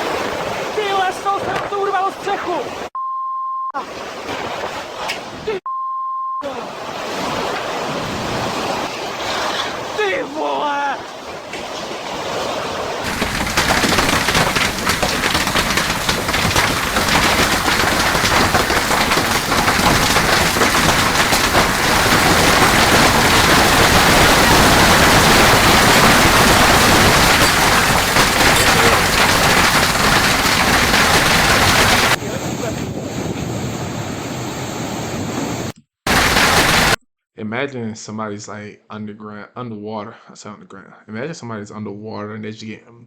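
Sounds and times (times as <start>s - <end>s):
hail and heavy rain pelting: 13.0s - 32.7s, 36.1s - 37.0s.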